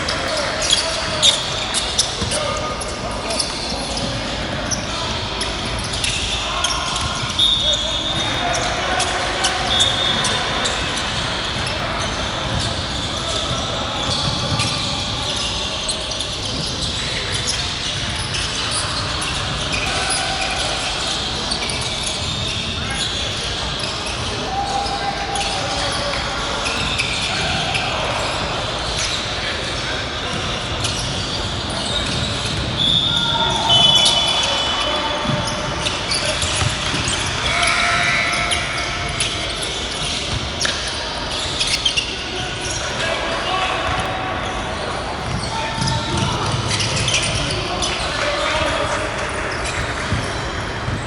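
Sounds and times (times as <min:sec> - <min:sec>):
din of voices and movement: 0:00.0 - 0:51.0
sneaker squeaks: 0:00.0 - 0:51.0
basketball bouncing on court: 0:05.8 - 0:15.5, 0:35.2 - 0:37.4, 0:45.2 - 0:48.0, 0:49.6 - 0:51.0.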